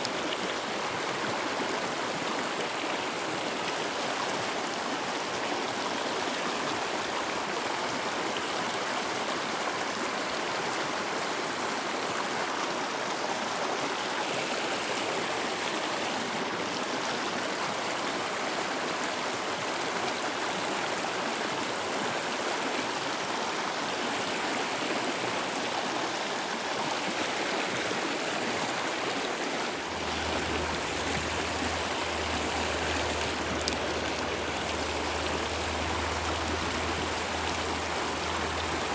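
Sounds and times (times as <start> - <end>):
stream rushing over rocks: 0.0 - 38.9
low rumble: 29.9 - 38.9
click: 33.2 - 33.9.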